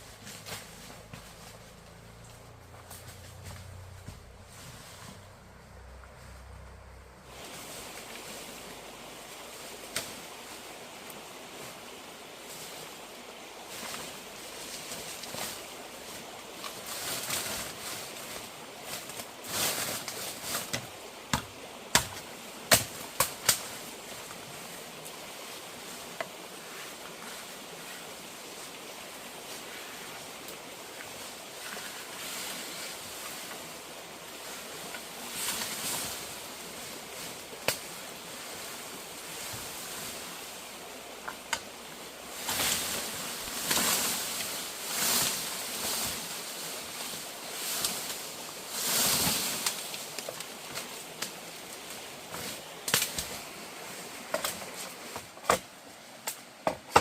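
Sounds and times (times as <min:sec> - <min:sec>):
rustling: 0:00.0 - 0:21.2, 0:22.8 - 0:56.9
outdoor hiss: 0:00.0 - 0:57.0.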